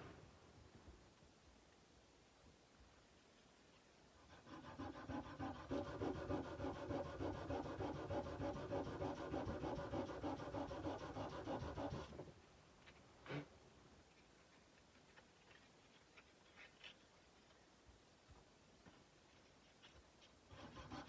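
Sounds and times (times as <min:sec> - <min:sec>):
sandpaper rubbing on steel blade: 0:04.4 - 0:12.2, 0:20.5 - 0:21.0.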